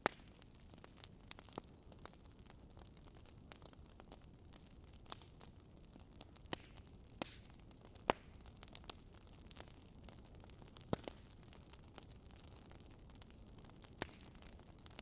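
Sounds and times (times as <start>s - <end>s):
sharp fire pops: 0.0s - 2.2s, 6.0s - 15.0s
firewood crackling: 0.0s - 15.0s
soft steady hiss: 0.0s - 15.0s.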